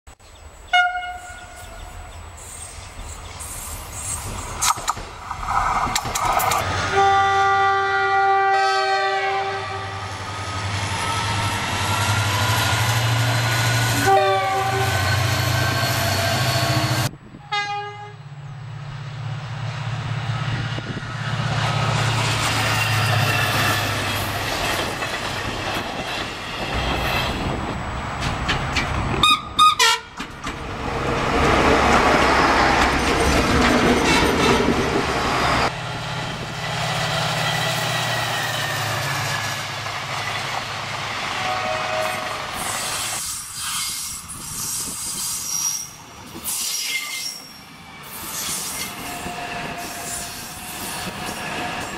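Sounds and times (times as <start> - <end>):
train horn: 0.7 - 2.2, 6.8 - 10.3, 13.9 - 15.6, 16.2 - 18.2, 29.2 - 30.2, 41.3 - 42.7
train wheels rushing past: 1.5 - 17.1, 18.7 - 51.9.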